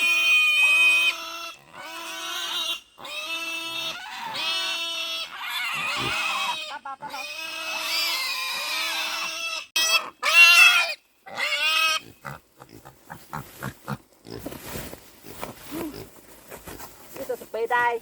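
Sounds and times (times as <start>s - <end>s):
piglets squealing: 0.0s - 14.0s
piglets grunting: 0.0s - 14.4s.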